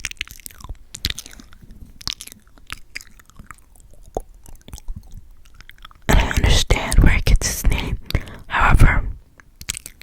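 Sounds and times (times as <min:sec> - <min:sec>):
lips smacking and clicking: 0:00.0 - 0:10.0.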